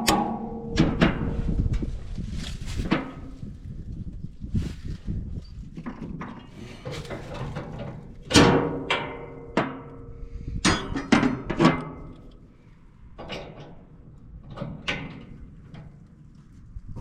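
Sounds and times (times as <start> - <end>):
hammer striking steel: 0.0 - 1.5.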